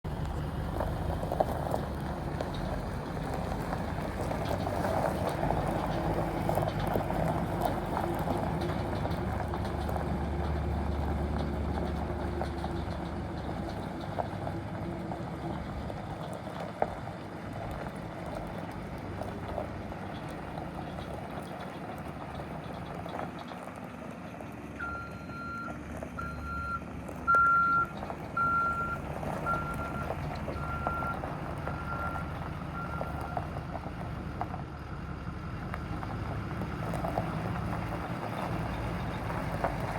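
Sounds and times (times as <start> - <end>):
truck engine running: 0.0 - 39.9
reversing alarm beeping: 24.8 - 33.5.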